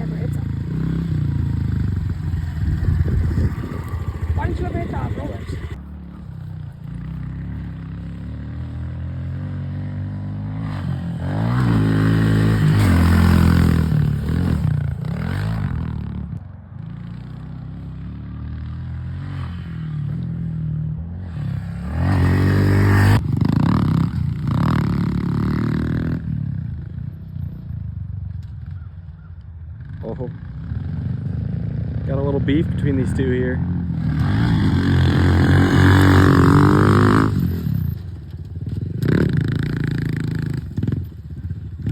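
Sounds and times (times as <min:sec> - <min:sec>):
pit bike engines revving: 0:00.0 - 0:16.4, 0:21.2 - 0:26.3, 0:29.8 - 0:41.9.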